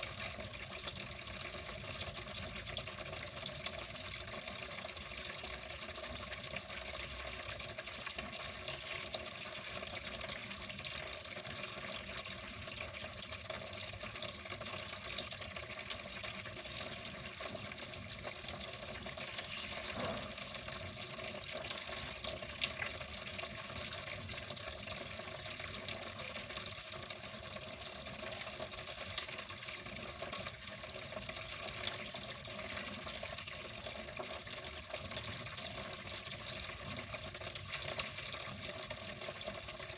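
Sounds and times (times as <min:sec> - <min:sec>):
water flowing and splashing: 0:16.8 - 0:30.0.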